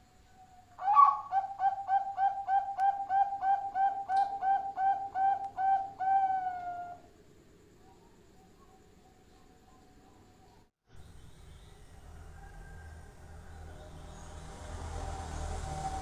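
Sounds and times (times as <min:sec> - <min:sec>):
dove cooing: 0:00.8 - 0:07.1.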